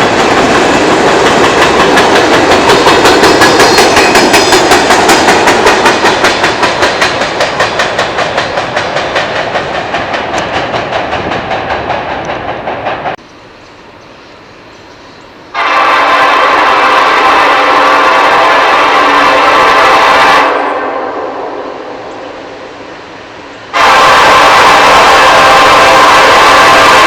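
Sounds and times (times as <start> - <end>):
train wheels clacking over rails: 0.0 - 13.2, 23.7 - 27.0
locomotive horn: 15.5 - 22.1, 23.7 - 27.0.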